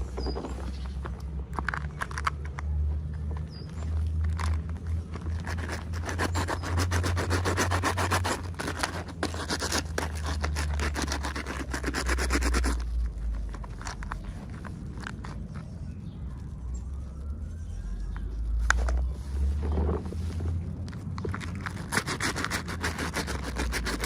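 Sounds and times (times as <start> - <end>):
packaging crackling: 3.4 - 15.7, 20.5 - 24.0.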